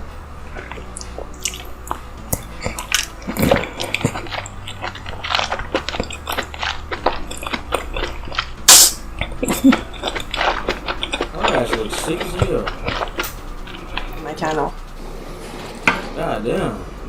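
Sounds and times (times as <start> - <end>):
person chewing food: 0.4 - 14.8
sharp loud noise: 8.7 - 9.1.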